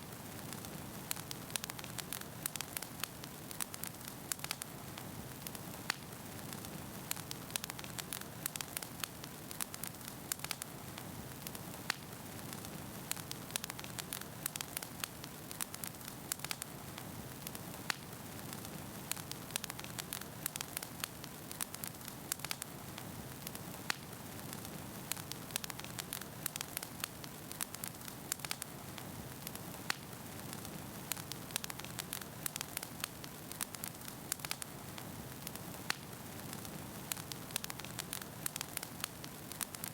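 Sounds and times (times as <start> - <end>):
firewood crackling and popping: 0.0 - 39.9
wood fire burning: 0.0 - 39.9.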